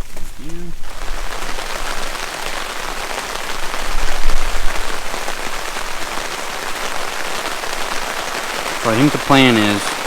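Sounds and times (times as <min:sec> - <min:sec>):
heavy rain falling: 0:00.0 - 0:10.0.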